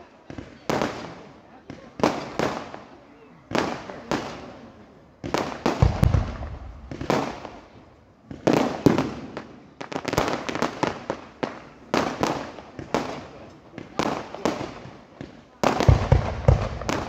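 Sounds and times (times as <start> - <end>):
crackling firework reports: 0.0 - 17.0
fireworks bangs with echo: 0.0 - 17.0
deep firework boom: 5.8 - 7.2.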